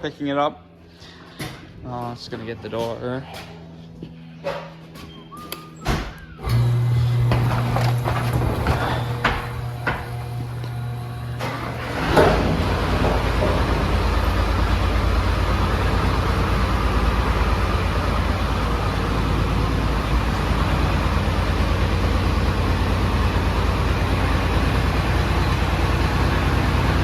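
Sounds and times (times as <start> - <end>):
tractor diesel engine running: 6.5 - 27.0.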